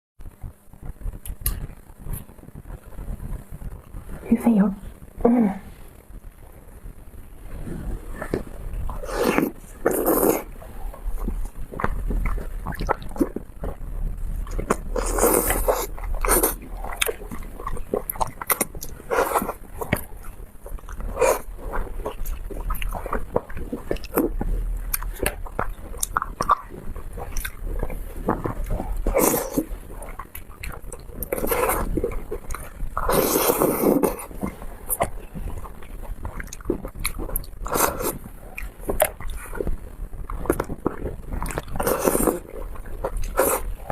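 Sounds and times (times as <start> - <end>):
person chewing and lip-smacking: 8.2 - 13.8, 14.4 - 43.9.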